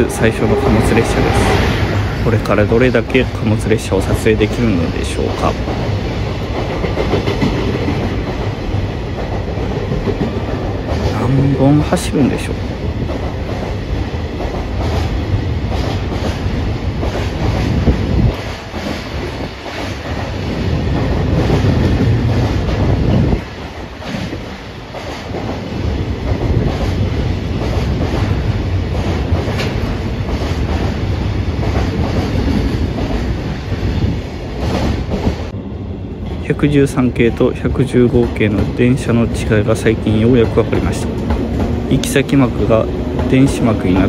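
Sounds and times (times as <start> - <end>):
train wheels clattering: 5.3 - 11.2, 12.5 - 35.5, 39.7 - 44.0.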